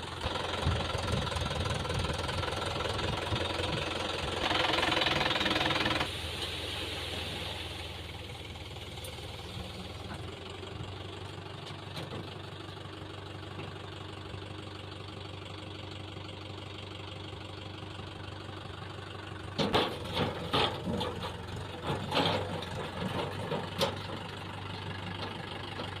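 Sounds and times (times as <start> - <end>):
diesel engine idling: 0.0 - 26.0
loud irregular knocks and rattles: 19.6 - 24.3.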